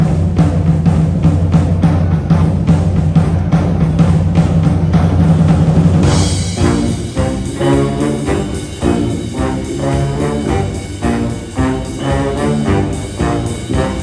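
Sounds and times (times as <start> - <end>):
drums beating steady pattern: 0.0 - 14.0
brass playing: 6.0 - 14.0
cymbal crash: 6.0 - 14.0
low bass line: 6.0 - 14.0.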